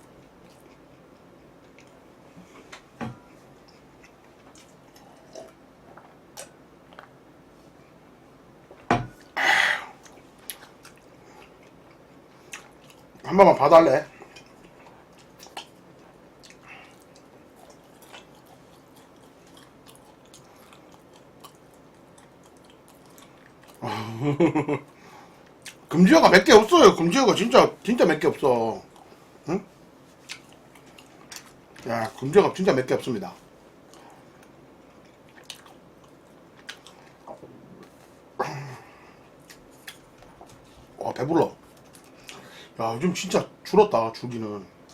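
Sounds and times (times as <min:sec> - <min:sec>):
chewing food: 0:00.0 - 0:02.7, 0:03.3 - 0:07.2, 0:10.0 - 0:13.3, 0:14.1 - 0:23.9, 0:24.9 - 0:25.9, 0:30.1 - 0:32.3, 0:33.8 - 0:38.1, 0:39.3 - 0:40.9, 0:41.6 - 0:42.5
mouth clicks and smacks: 0:14.3 - 0:15.8.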